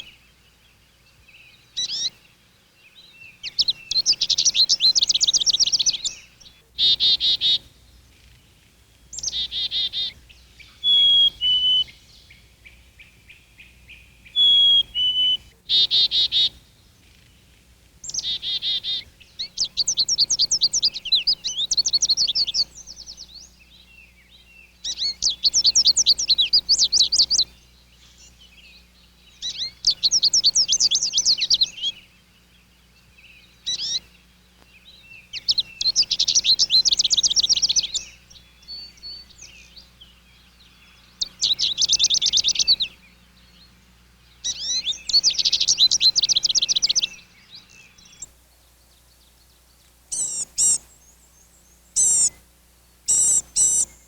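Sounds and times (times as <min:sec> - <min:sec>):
songbird trilling: 0:00.0 - 0:54.0
high-pitched bird calls: 0:01.5 - 0:02.2, 0:03.0 - 0:23.5, 0:29.3 - 0:32.1, 0:33.6 - 0:34.2, 0:34.8 - 0:48.4, 0:50.1 - 0:52.5, 0:53.1 - 0:54.0.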